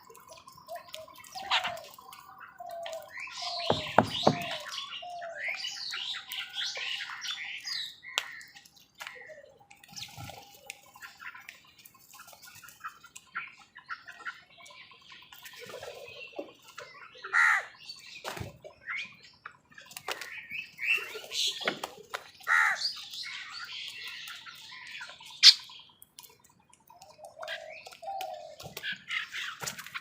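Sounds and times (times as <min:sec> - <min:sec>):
birds chirping: 0:00.0 - 0:30.0
crows calling: 0:03.4 - 0:05.2, 0:17.3 - 0:17.7, 0:22.4 - 0:22.9.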